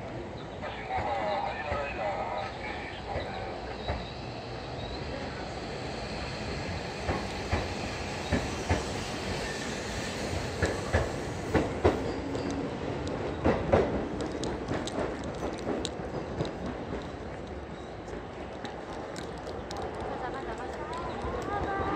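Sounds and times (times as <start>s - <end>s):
train rumble: 0.0s - 21.9s
wheels clacking over rail joints: 10.3s - 21.9s.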